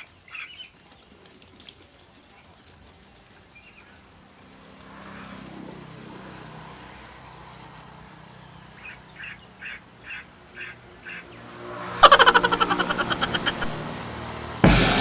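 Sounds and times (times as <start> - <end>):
duck quacking: 12.0 - 13.8.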